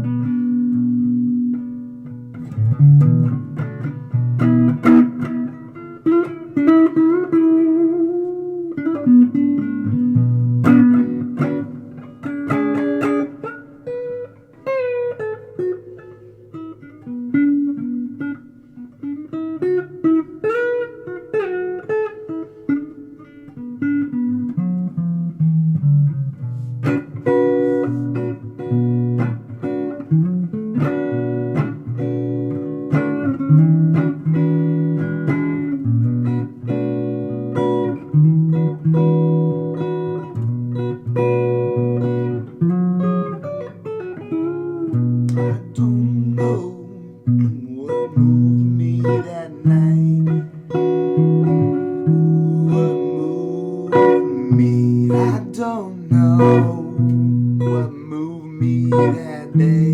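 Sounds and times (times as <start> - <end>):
blues guitar: 0.0 - 59.9.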